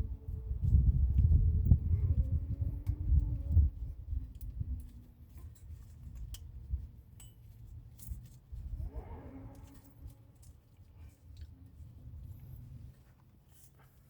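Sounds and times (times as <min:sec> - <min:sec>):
light clicks and clinks: 0:04.2 - 0:08.5.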